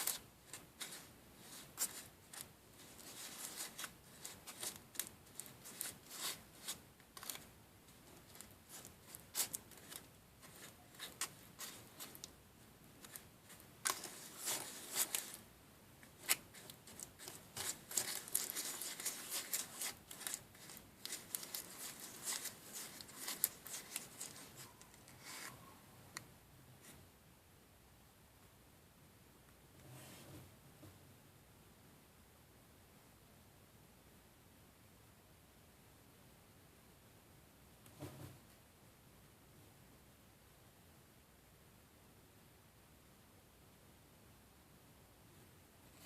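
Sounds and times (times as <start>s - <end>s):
handling clicks and scraping: 13.0s - 15.4s, 16.0s - 25.6s.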